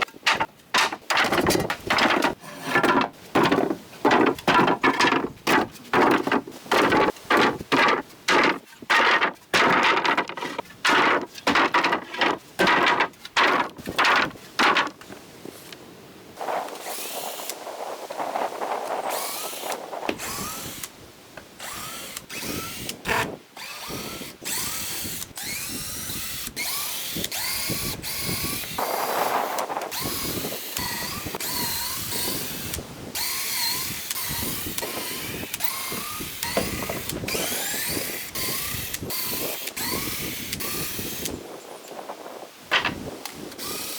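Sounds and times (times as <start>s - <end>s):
power drill backing out screws: 33.2s - 40.8s.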